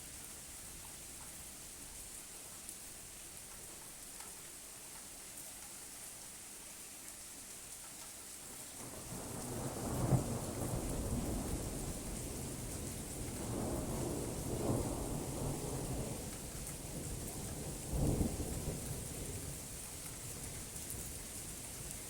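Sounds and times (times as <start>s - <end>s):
rain falling: 0.0s - 22.0s
thunder rumbling and cracking: 8.8s - 12.8s, 13.4s - 16.3s, 17.0s - 19.0s.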